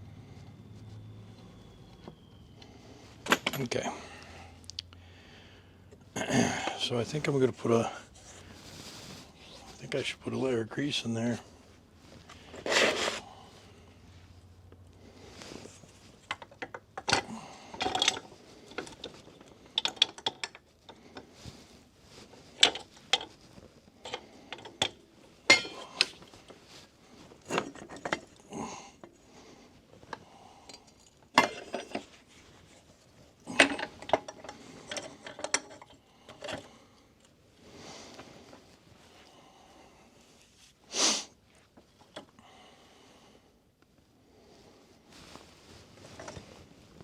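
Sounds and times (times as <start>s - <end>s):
metal parts clicking and clinking: 3.2s - 3.8s, 16.2s - 21.0s, 22.6s - 23.4s, 24.0s - 26.3s, 27.4s - 28.4s, 30.1s - 32.2s, 33.4s - 37.3s
metal clanks: 3.2s - 3.9s, 24.1s - 26.2s, 30.7s - 32.1s.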